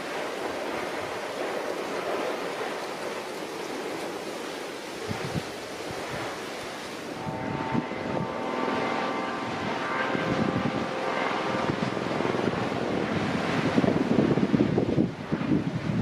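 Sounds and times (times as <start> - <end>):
wind buffeting microphone: 0.0 - 16.0
engine-like drone: 6.6 - 16.0.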